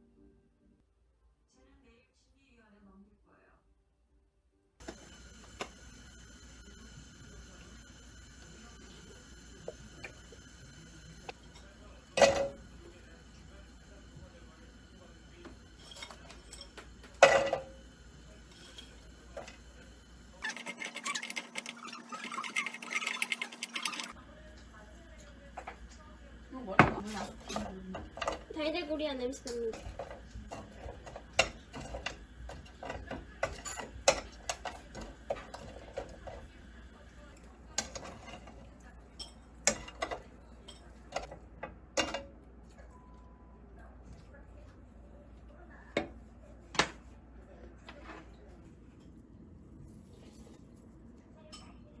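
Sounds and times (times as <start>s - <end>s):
faint steady hum: 4.8s - 20.4s.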